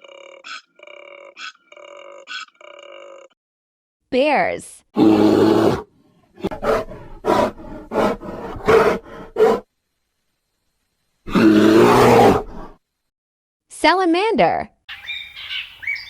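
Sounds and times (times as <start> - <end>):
bear growling: 0.0 - 3.4, 5.0 - 9.7, 11.3 - 12.8.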